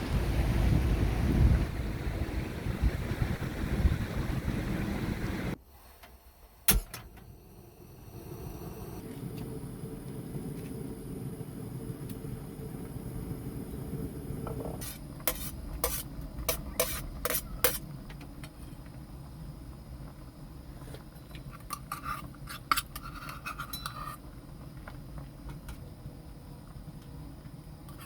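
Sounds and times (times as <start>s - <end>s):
low steady rumble: 0.0s - 21.7s
tableware scraping: 21.5s - 24.2s.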